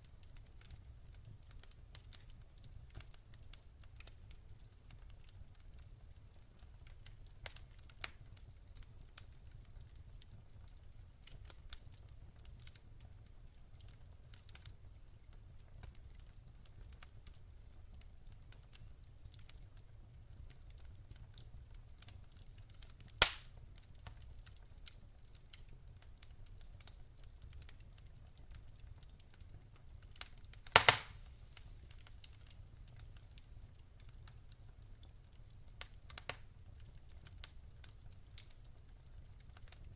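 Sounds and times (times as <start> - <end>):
campfire crackling: 0.0 - 39.9
loud sharp pops: 23.2 - 23.5, 30.6 - 31.4
brief hiss: 30.8 - 31.8.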